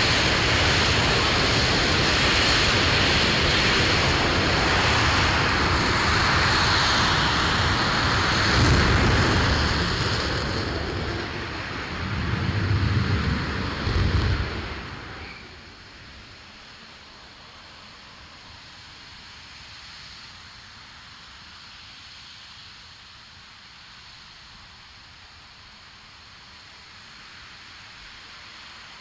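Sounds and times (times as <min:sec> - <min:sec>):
rocket engine roar: 0:00.0 - 0:21.8.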